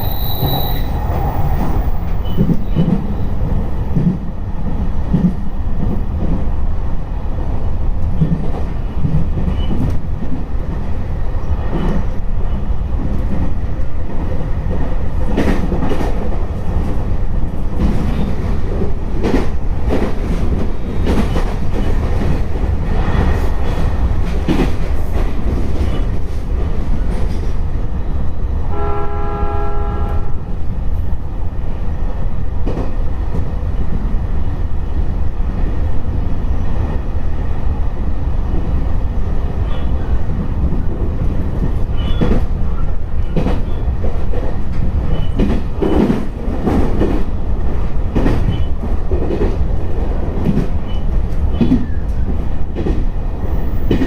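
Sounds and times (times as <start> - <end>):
electric train rumbling: 0.0 - 54.0
two-tone train horn blast: 28.6 - 30.6.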